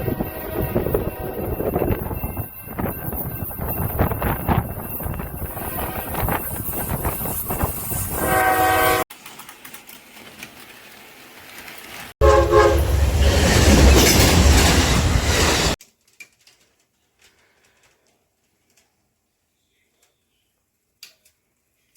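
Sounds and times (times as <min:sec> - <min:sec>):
train horn: 0:00.0 - 0:01.8, 0:05.6 - 0:06.5, 0:08.1 - 0:09.0, 0:12.2 - 0:13.1
passing train rumble: 0:00.0 - 0:09.0, 0:11.2 - 0:15.8.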